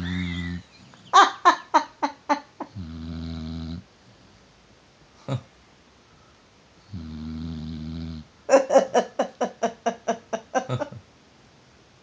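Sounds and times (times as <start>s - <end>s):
dog snoring: 2.7s - 3.9s, 6.9s - 8.3s.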